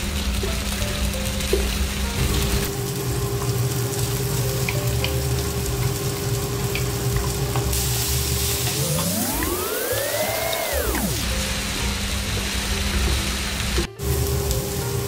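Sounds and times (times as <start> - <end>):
pork sizzling in a pan: 0.0 - 15.0
gliding pitched sound: 8.3 - 11.6
steady tone: 8.6 - 11.4.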